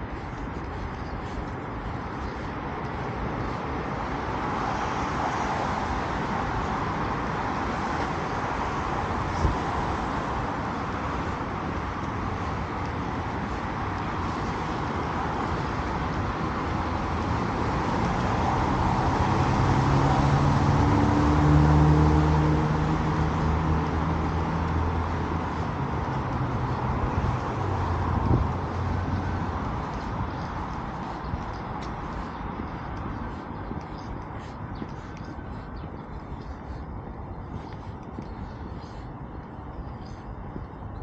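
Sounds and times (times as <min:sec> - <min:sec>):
street traffic: 0:00.0 - 0:41.0
vehicle engine passing by: 0:17.1 - 0:30.5.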